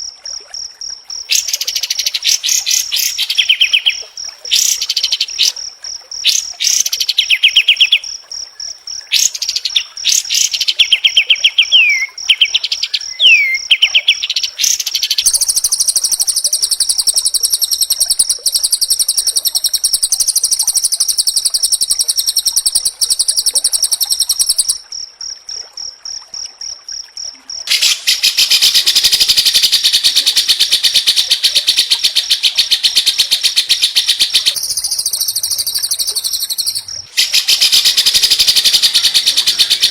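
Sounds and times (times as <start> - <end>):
bird whistled song: 1.3 - 4.0, 6.3 - 8.0, 9.2 - 21.4, 27.7 - 39.9
bird rapid rattling trills: 29.4 - 39.9
high insect-like whine: 32.6 - 39.9.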